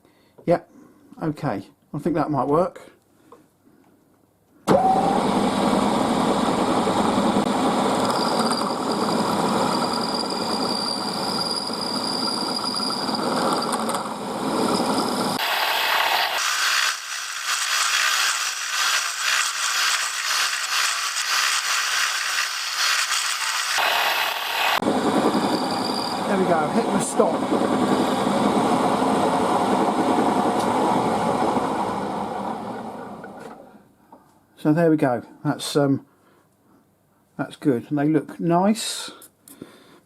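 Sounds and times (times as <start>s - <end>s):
milling machine spindle running: 4.7s - 33.2s.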